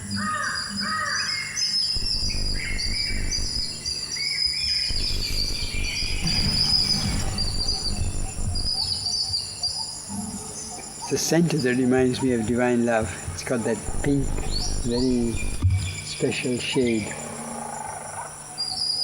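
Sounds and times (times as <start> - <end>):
birds chirping: 0.0 - 17.5
high insect drone: 0.0 - 19.0
low rumble: 2.0 - 4.0, 4.9 - 9.0, 13.9 - 15.6.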